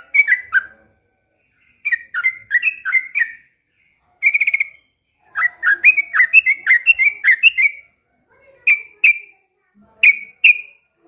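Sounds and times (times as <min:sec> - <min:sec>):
bird singing whistled notes: 0:00.0 - 0:00.9, 0:01.5 - 0:03.6, 0:04.2 - 0:07.9, 0:10.0 - 0:10.8.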